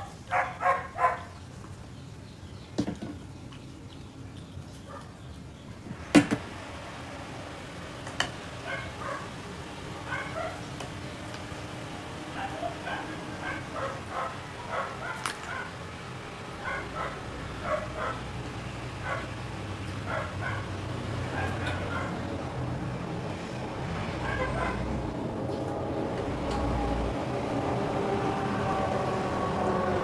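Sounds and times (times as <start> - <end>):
pet yipping and whimpering: 0.0 - 1.3, 10.1 - 10.7, 12.2 - 15.8, 16.6 - 18.2, 20.0 - 22.2
low hum: 9.5 - 30.0.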